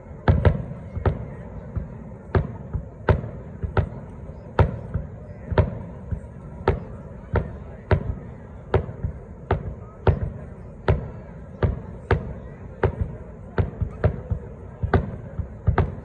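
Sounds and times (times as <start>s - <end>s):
fireworks bangs with echo: 0.0s - 16.0s.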